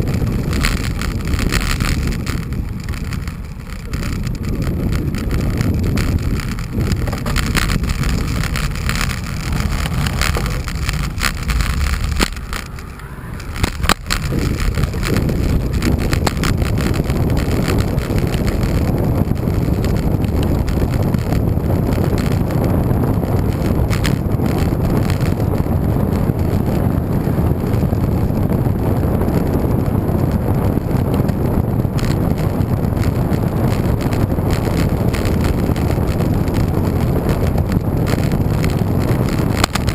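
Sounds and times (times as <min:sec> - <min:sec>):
sharp clicks and rattles: 0:00.0 - 0:39.9
wind rumble on microphone: 0:00.0 - 0:39.9.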